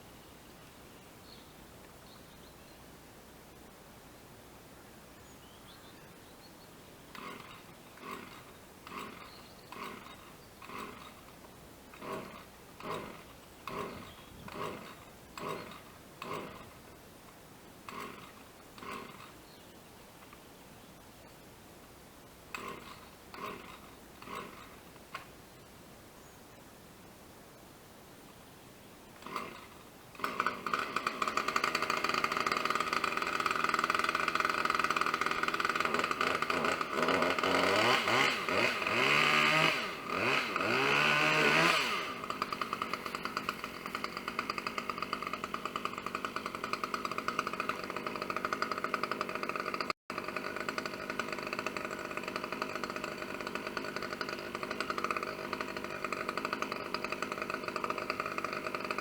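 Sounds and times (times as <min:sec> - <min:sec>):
chainsaw running: 0:07.1 - 0:19.6, 0:22.4 - 0:25.4, 0:29.2 - 0:59.0.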